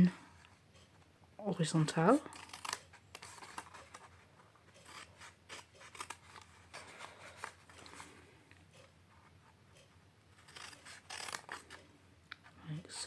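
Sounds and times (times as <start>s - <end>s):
scissors cutting cardstock: 2.0s - 8.1s, 10.4s - 11.8s.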